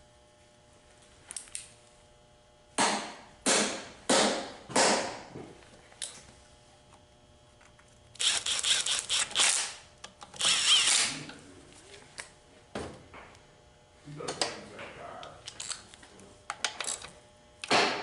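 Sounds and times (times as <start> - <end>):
handheld power tool running: 7.6 - 11.4.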